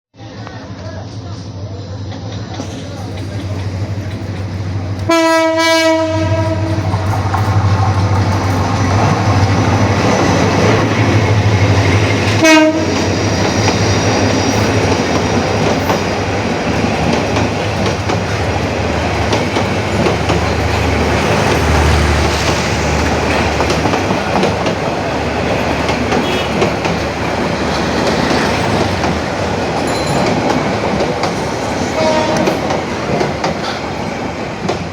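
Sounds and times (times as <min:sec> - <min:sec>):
train running on track: 0:00.2 - 0:34.9
diesel train horn: 0:05.0 - 0:07.2, 0:12.2 - 0:13.4, 0:26.1 - 0:26.9, 0:31.8 - 0:32.8.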